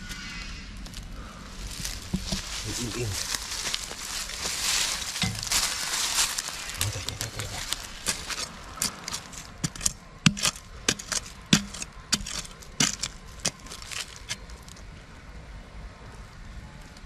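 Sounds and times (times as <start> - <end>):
digging tool striking earth: 1.8 - 5.9, 6.5 - 14.7.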